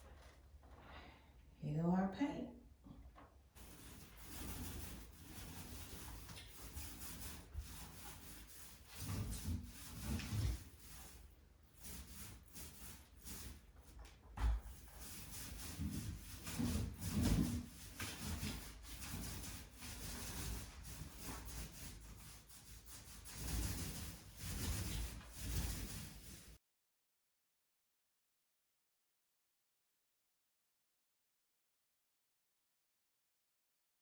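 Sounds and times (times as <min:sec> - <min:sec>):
paint roller rubbing on wall: 0:03.6 - 0:26.6.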